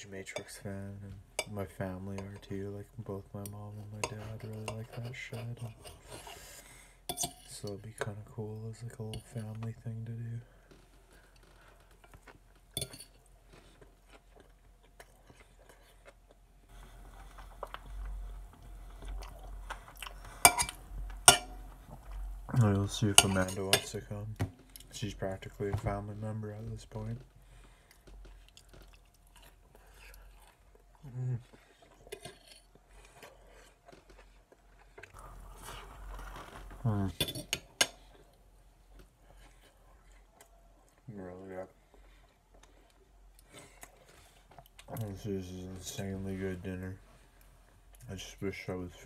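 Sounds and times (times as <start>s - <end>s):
person chewing food: 10.7s - 22.5s, 27.2s - 36.8s, 37.7s - 41.1s, 41.7s - 45.1s
cutlery clicking on a plate: 20.5s - 21.6s.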